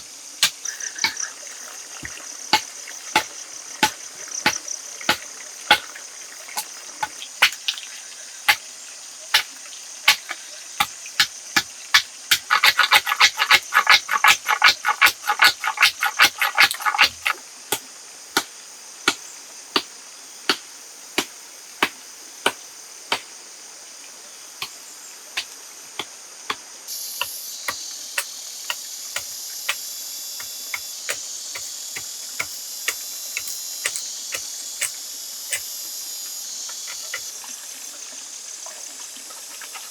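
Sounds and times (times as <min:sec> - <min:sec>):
steady high hiss: 0:22.7 - 0:37.0.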